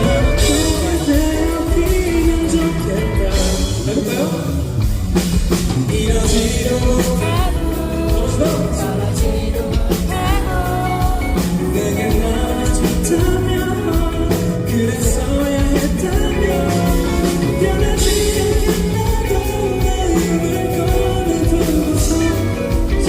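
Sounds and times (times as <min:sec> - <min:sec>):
man singing: 0:00.0 - 0:23.0
pop rock band playing: 0:00.0 - 0:23.0.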